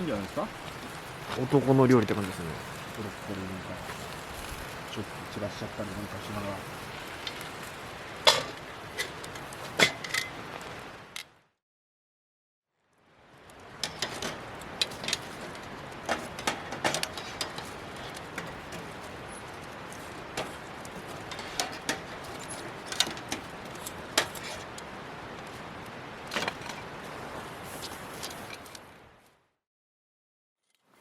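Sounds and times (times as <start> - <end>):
meat sizzling in a skillet: 0.0 - 9.7.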